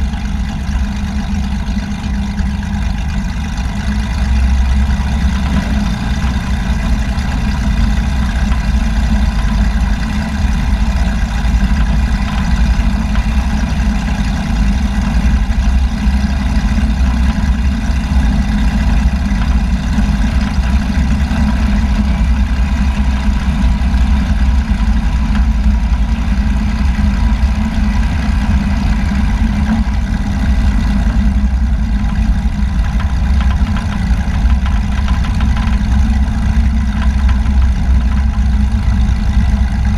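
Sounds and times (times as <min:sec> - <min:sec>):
aircraft engine drone: 0:00.0 - 0:39.9.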